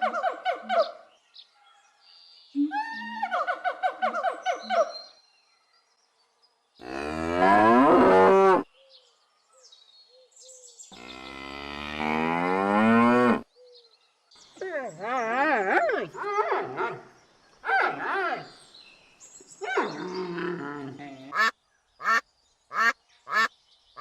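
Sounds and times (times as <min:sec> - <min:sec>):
cow mooing: 0:21.3 - 0:22.2
animal short repeated calls: 0:21.3 - 0:23.5.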